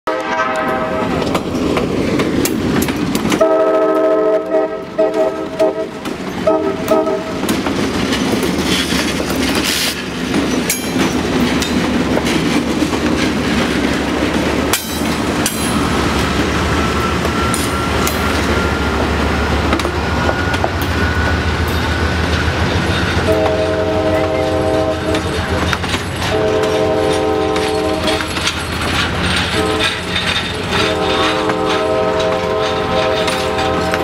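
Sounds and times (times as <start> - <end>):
train air horn blast: 0.1 - 1.2, 3.4 - 7.4, 23.2 - 25.4, 26.2 - 28.3, 29.5 - 30.1, 30.7 - 34.0
passing train rumble: 0.1 - 34.0
wheels clicking over rail joints: 0.6 - 34.0.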